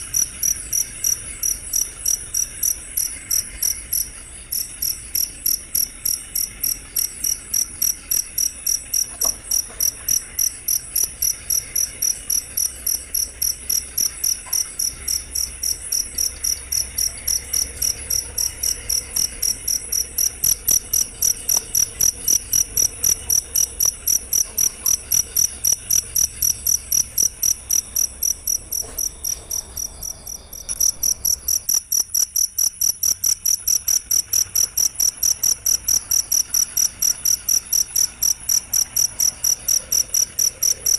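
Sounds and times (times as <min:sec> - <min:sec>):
cricket chirping: 0:00.0 - 0:40.9.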